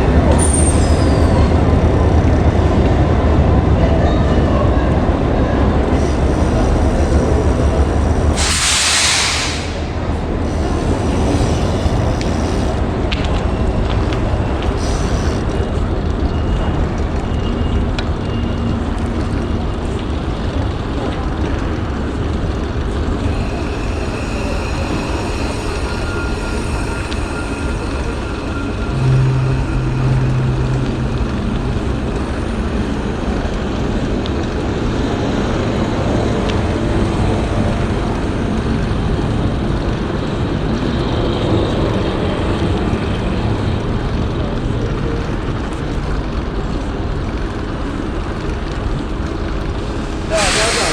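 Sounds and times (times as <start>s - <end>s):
low rumble of trains: 0.0s - 50.9s
low steady tone: 27.0s - 33.4s.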